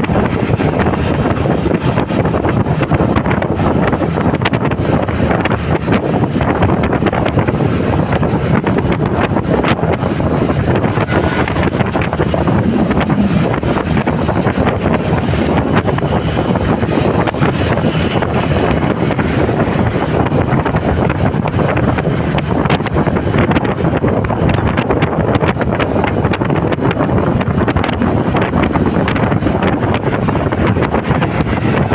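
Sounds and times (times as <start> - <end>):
motorcycle engine: 0.0 - 24.8
road noise: 0.0 - 31.9
wind buffeting microphone: 0.0 - 31.9.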